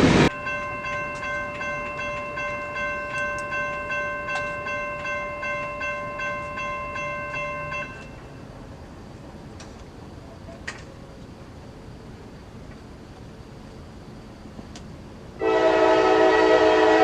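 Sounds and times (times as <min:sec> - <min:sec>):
railroad crossing bell ringing: 0:00.3 - 0:08.7.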